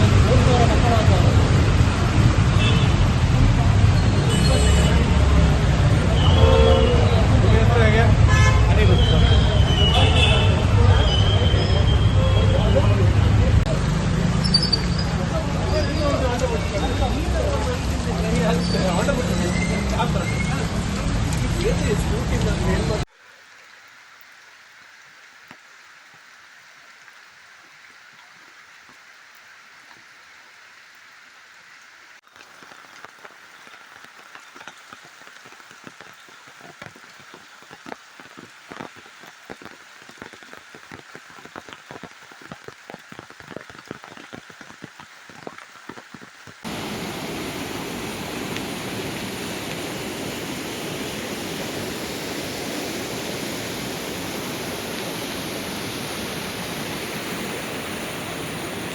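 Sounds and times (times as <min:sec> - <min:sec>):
heavy rain hissing: 0:00.0 - 0:25.4, 0:46.6 - 0:58.9
raindrops striking close by: 0:00.0 - 0:58.9
rushing water: 0:00.0 - 0:58.9.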